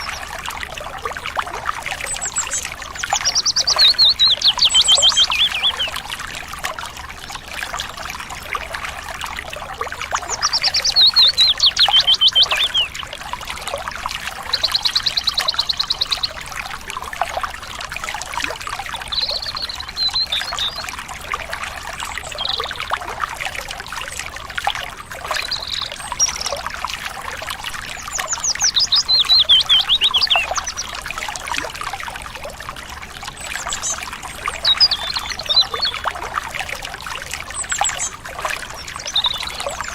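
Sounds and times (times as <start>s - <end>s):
birds singing: 0.0s - 6.1s, 10.0s - 13.1s, 14.2s - 16.5s, 19.0s - 21.0s, 21.9s - 23.0s, 25.2s - 26.7s, 27.6s - 31.4s, 33.3s - 36.8s, 37.4s - 39.9s
trickling stream: 0.0s - 39.9s.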